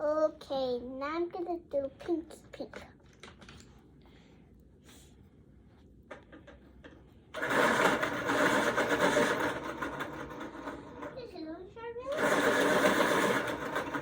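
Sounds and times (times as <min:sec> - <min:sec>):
electric pencil sharpener grinding: 0:07.4 - 0:11.2, 0:12.1 - 0:14.0.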